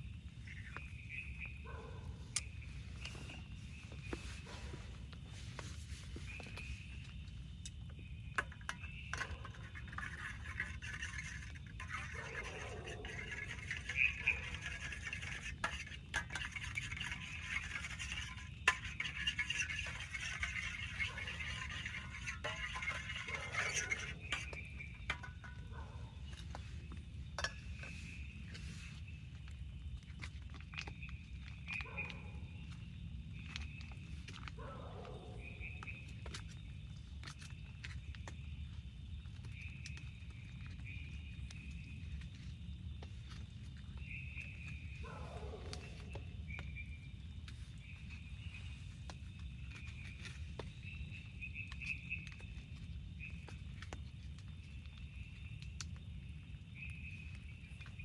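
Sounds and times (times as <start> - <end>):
cookware clinking: 10.0 - 25.6.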